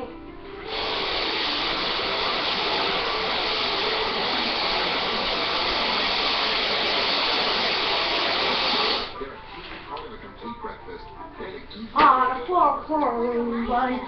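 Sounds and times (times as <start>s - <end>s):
vacuum cleaner running: 0.0s - 9.2s.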